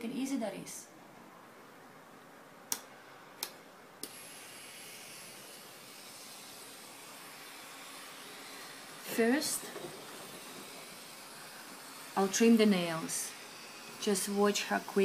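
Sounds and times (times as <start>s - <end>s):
electric drill whining: 4.0s - 15.0s.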